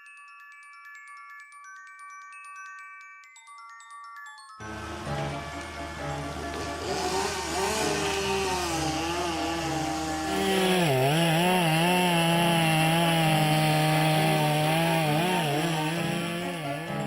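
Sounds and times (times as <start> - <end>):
chainsaw cutting wood: 4.6 - 17.0.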